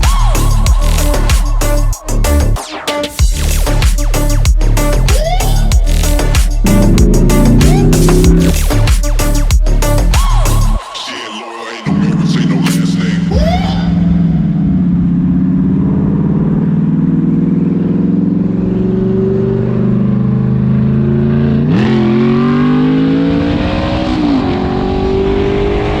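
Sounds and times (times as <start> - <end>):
car engine accelerating: 6.6 - 8.9, 14.2 - 26.0.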